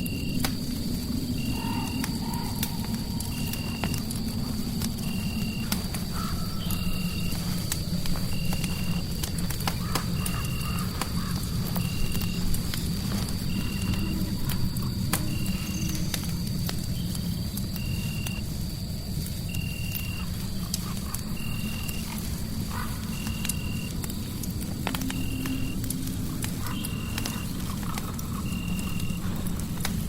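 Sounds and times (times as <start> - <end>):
fireplace fire crackling: 0.0 - 30.0.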